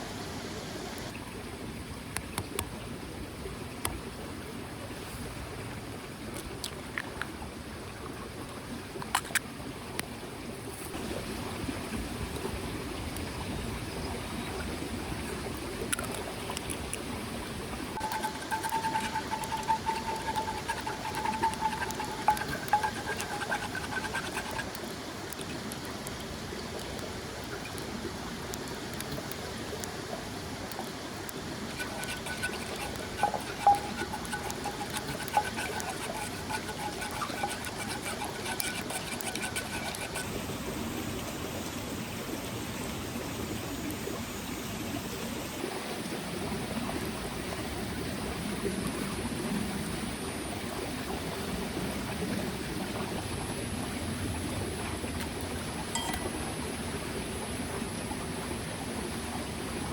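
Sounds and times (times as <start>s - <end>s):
stream flowing: 0.0s - 48.3s, 50.5s - 59.9s
faint wavering tone: 18.0s - 24.6s, 31.8s - 40.2s, 56.0s - 56.4s.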